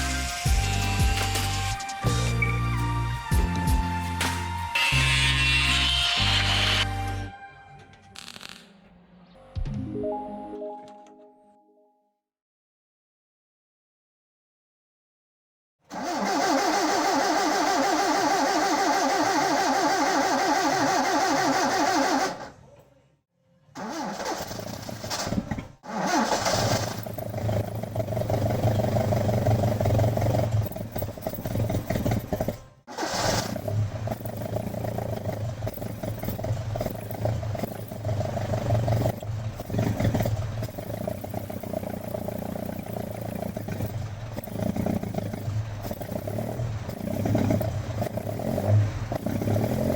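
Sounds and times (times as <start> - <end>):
car engine turning over: 15.9 - 22.6, 23.8 - 49.9
car engine revving: 23.8 - 49.9.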